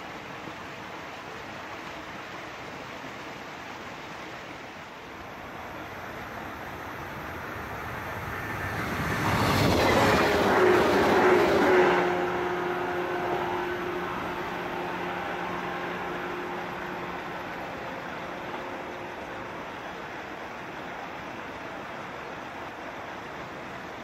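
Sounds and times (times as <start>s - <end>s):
electric train passing: 5.0s - 24.0s
train whine dropping in pitch: 5.5s - 20.0s.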